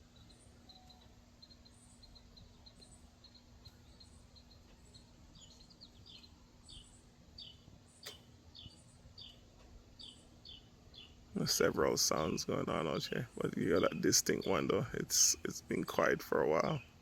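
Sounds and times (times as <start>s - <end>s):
sharp click: 8.0s - 8.3s.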